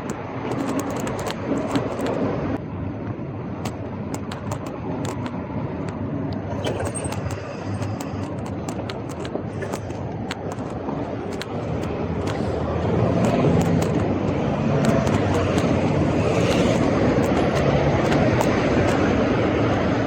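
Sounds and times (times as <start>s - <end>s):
sharp clicks and rattles: 0.0s - 2.6s, 3.6s - 20.0s
tyres rumbling on road: 0.0s - 20.0s.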